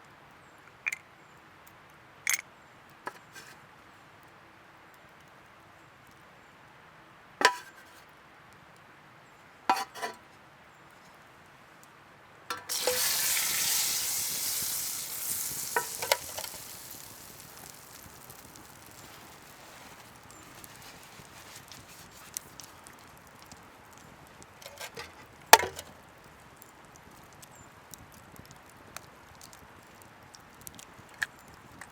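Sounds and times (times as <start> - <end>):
sizzling: 12.5 - 31.9.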